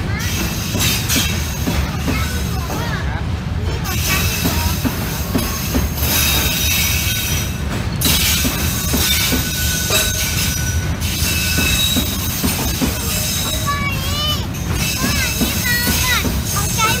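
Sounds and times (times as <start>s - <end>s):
train wheels rumbling on rails: 0.0s - 17.0s
high-pitched wheel squeal: 8.3s - 12.4s.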